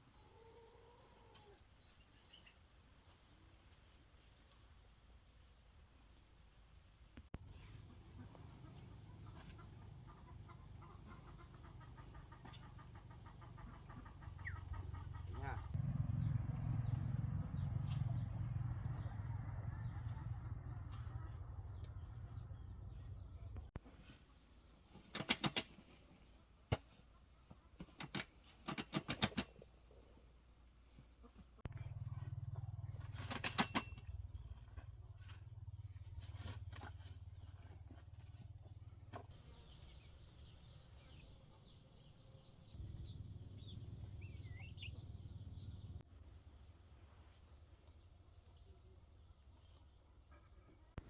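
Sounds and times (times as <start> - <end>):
low steady rumble: 13.4 - 23.8, 31.6 - 47.2
sharp clicks or knocks: 25.1 - 25.7
faint bird calls: 39.2 - 46.0.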